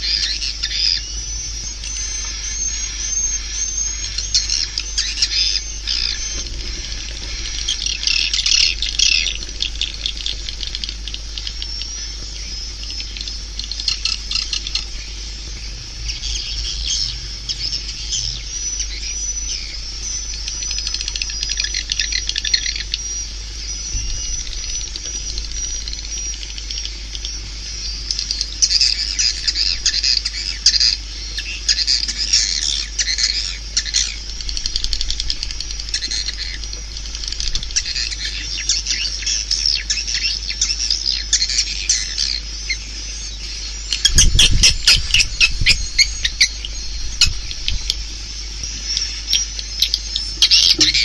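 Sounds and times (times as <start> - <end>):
low hum: 0.0 - 51.0
swiftlets twittering and chirping: 0.0 - 51.0.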